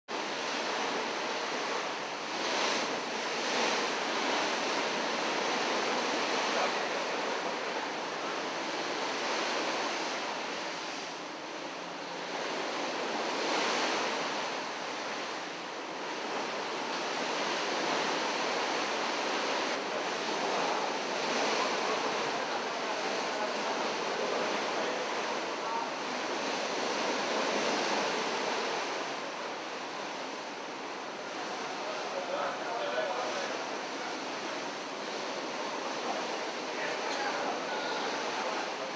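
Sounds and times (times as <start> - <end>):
sea waves: 0.1 - 38.9.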